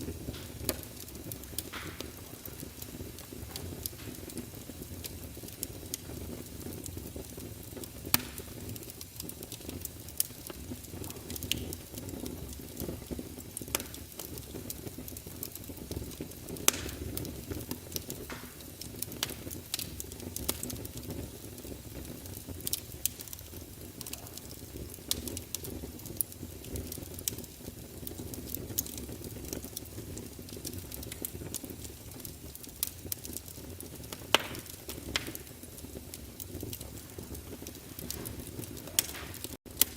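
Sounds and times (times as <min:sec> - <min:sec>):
fire flames rumbling: 0:00.0 - 0:39.9
logs crackling and popping: 0:00.0 - 0:39.9.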